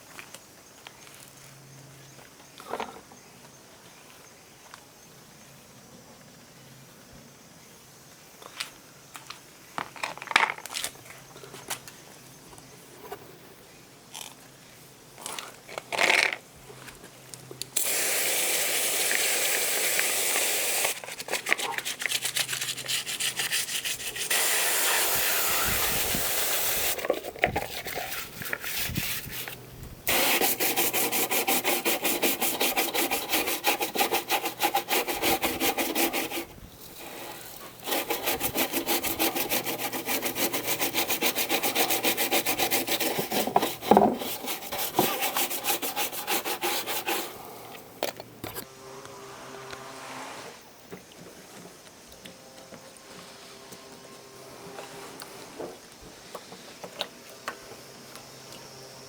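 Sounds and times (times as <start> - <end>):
brush scrubbing a surface: 20.7 - 47.5.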